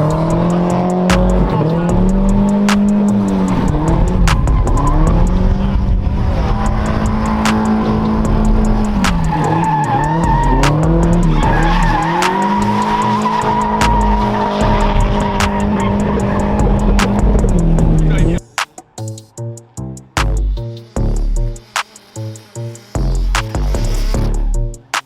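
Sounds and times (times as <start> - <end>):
sharp clicks: 0.0 - 5.4, 6.6 - 11.2, 12.0 - 14.2, 15.0 - 17.6
car engine at high revs: 0.0 - 25.0
tyres squealing: 0.0 - 25.0.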